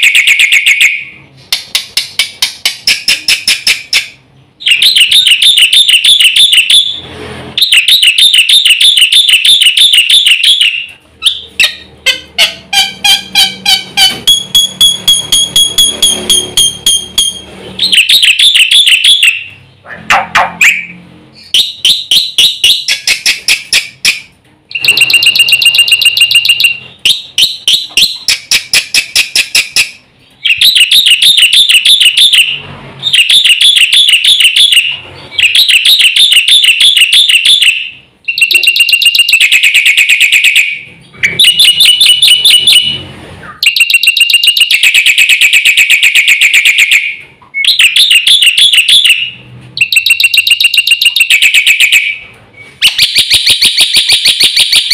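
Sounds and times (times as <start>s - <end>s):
bird singing shrill chatter: 0.0s - 19.8s, 20.6s - 40.2s, 40.8s - 54.9s.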